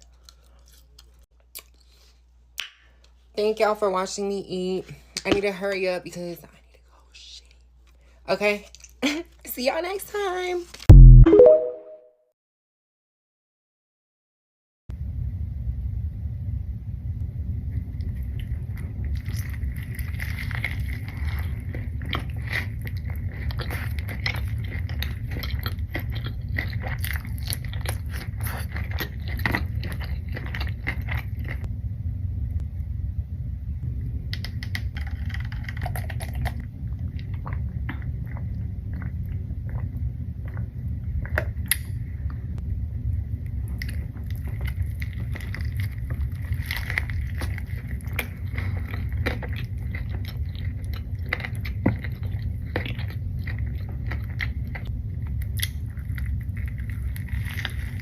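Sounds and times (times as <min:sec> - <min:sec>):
low rumble: 0:14.9 - 0:25.0, 0:29.3 - 0:58.0
chewing and biting food: 0:18.0 - 0:31.7, 0:34.9 - 0:41.9, 0:43.7 - 0:58.0.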